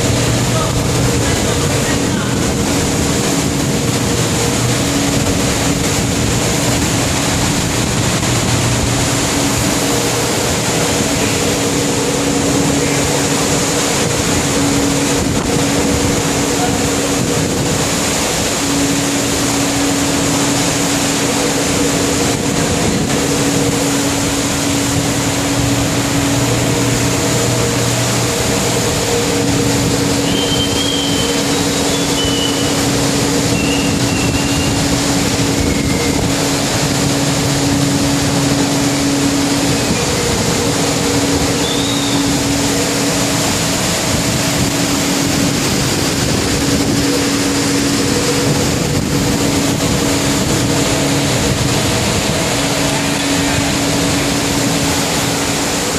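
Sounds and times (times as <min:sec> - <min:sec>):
heavy sea: 0:00.0 - 0:55.9
ship engine humming: 0:00.0 - 0:55.9
storm wind rushing: 0:21.8 - 0:55.9.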